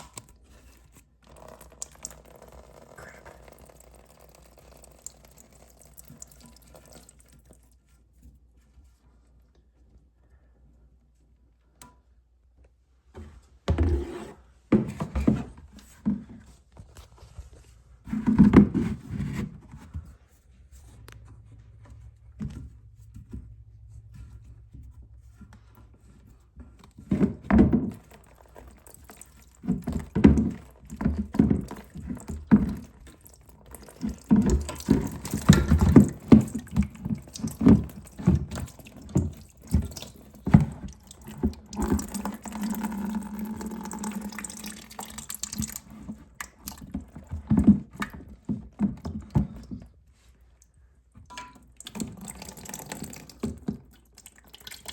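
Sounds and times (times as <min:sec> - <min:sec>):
water running: 0:00.0 - 0:07.8, 0:26.9 - 0:49.6, 0:51.3 - 0:54.9.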